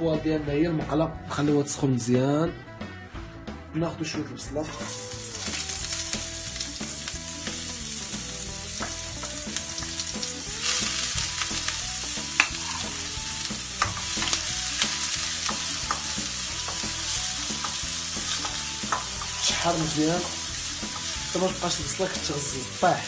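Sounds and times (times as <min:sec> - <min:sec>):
onion sizzling in hot oil: 0:04.6 - 0:23.0.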